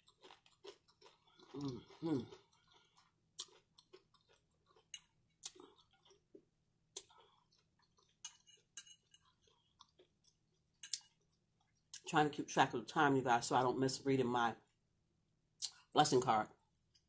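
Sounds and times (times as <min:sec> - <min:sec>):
chewing nachos: 0:00.0 - 0:12.1.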